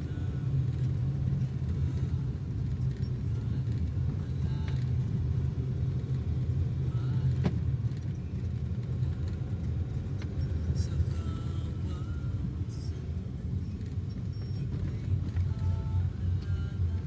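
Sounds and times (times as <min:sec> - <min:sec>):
vehicle road rumble: 0:00.0 - 0:17.0.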